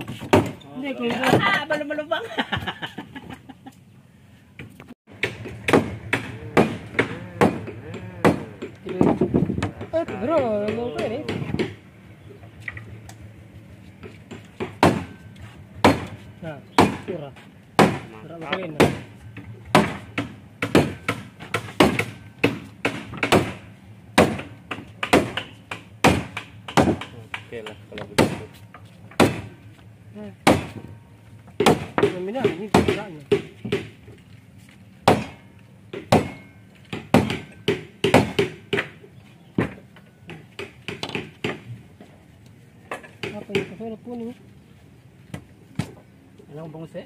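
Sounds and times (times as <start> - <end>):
hand tool striking wood: 5.2 - 11.8, 17.8 - 23.6, 24.2 - 29.5, 30.4 - 33.9, 35.0 - 39.0, 39.6 - 41.7, 42.9 - 43.9.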